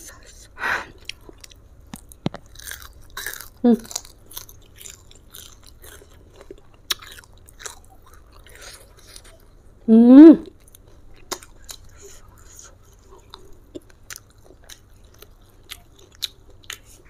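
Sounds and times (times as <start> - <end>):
wet chewing with crunches: 1.0 - 9.6, 10.5 - 17.0
person humming: 3.6 - 3.9, 9.9 - 10.5.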